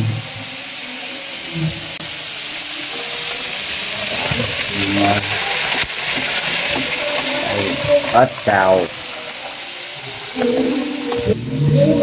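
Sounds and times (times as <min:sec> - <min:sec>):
food sizzling in a hot pan: 0:00.0 - 0:11.9.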